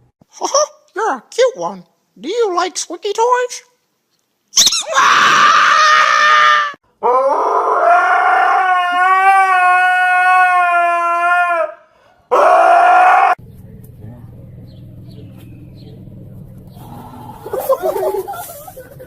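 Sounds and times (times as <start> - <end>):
dog howling: 4.9 - 13.4.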